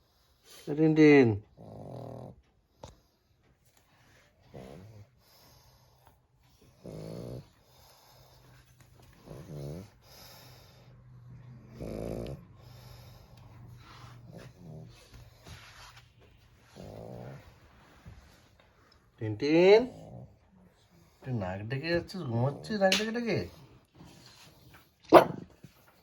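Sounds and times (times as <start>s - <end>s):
dog snoring: 1.4s - 3.1s, 4.5s - 15.1s, 16.6s - 18.1s, 19.5s - 20.5s.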